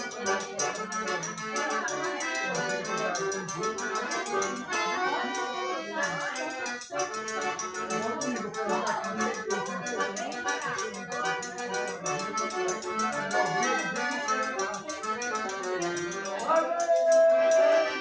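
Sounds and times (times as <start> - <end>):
accordion-led folk music: 0.0 - 18.0
quick percussion beat: 6.1 - 17.7.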